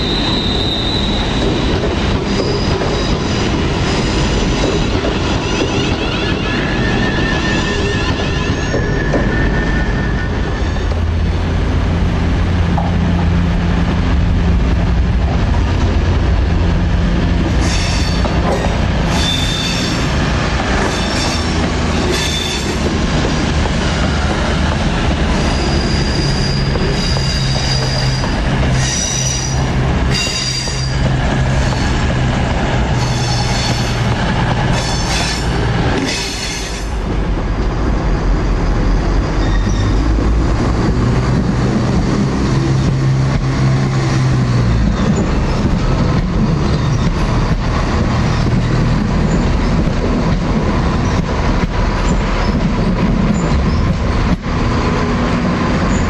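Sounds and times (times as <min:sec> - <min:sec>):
train wheel flanges squealing: 0:00.0 - 0:11.0, 0:17.6 - 0:22.9, 0:23.8 - 0:32.0, 0:32.9 - 0:37.0, 0:38.4 - 0:40.2, 0:44.9 - 0:50.0, 0:51.9 - 0:54.2.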